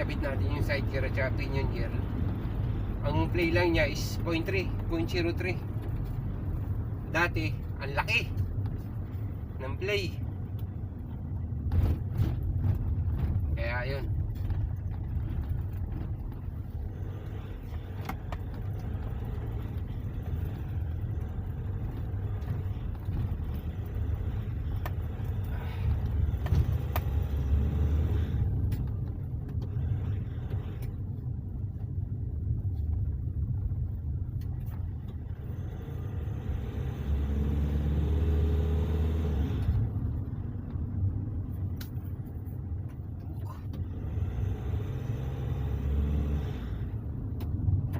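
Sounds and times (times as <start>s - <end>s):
engine and road noise rumble: 0.0s - 47.9s.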